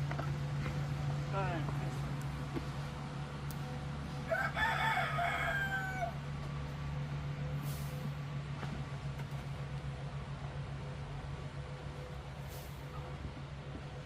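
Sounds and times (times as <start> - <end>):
rooster crowing: 4.2 - 6.3.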